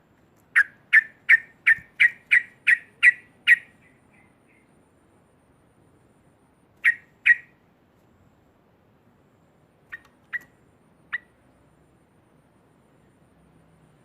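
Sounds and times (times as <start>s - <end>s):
bird call notes: 0.5s - 4.7s, 6.8s - 7.6s, 9.9s - 11.4s.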